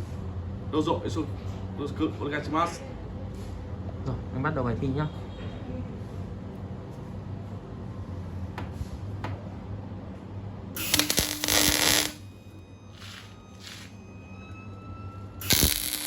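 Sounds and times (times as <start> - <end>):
low electrical hum: 6.4 - 16.0
welding arc crackling hiss: 10.8 - 12.2, 15.4 - 16.0.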